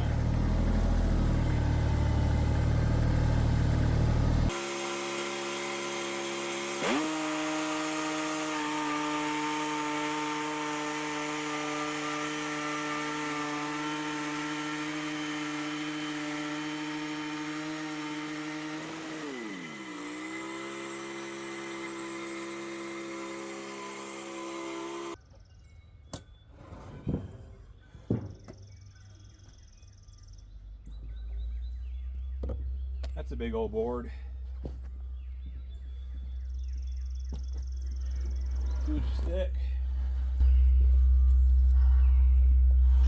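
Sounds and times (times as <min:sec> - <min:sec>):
saw blade cutting log: 0:00.0 - 0:25.2
sawmill gas engine running: 0:00.0 - 0:25.2.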